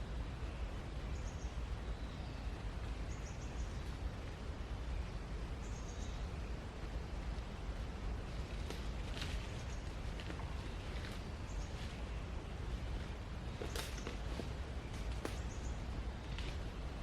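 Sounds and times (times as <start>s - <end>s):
bird chirping faintly: 9.2s - 16.4s.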